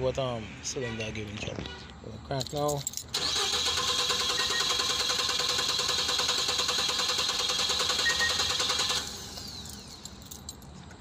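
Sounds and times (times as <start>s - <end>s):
engine cranking without firing: 3.0s - 10.3s.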